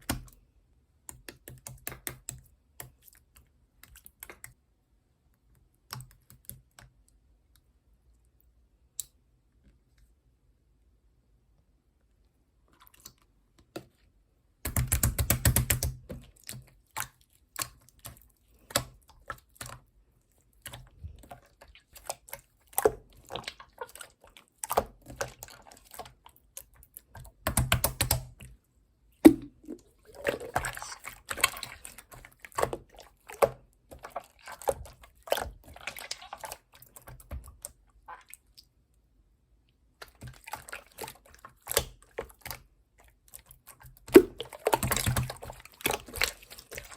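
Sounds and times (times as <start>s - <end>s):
slime squeezed by hand: 29.2s - 32.0s.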